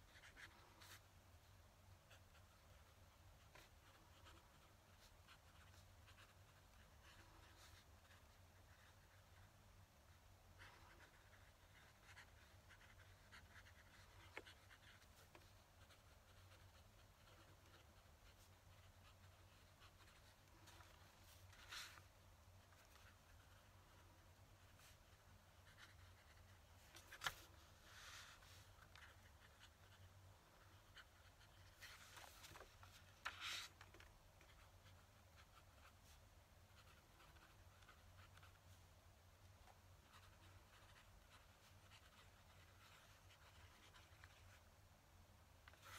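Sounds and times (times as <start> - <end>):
pen nib scratching on paper: 2.0 - 9.5, 10.5 - 38.7, 39.6 - 44.6
paper rustle: 31.7 - 34.0.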